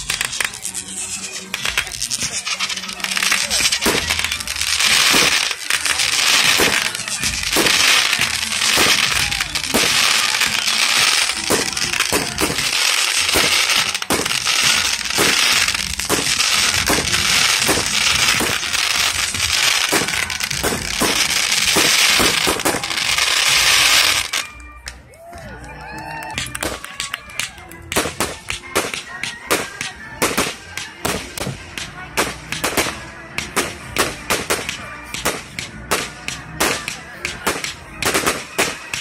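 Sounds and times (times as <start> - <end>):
fireworks crackling: 0.0 - 24.7, 26.4 - 39.0
fireworks booming: 1.5 - 24.4.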